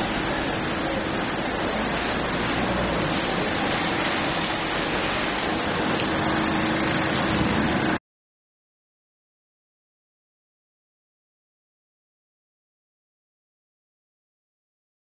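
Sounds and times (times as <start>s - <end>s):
rain splashing into puddle: 0.0s - 8.0s.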